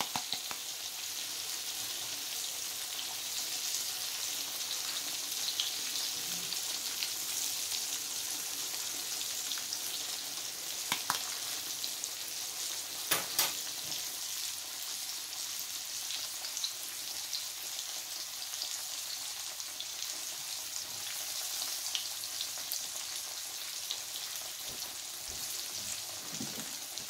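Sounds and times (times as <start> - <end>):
oil popping and crackling: 0.0 - 0.9, 10.8 - 11.6, 26.0 - 27.0
pork chop sizzling in hot oil: 0.0 - 27.0.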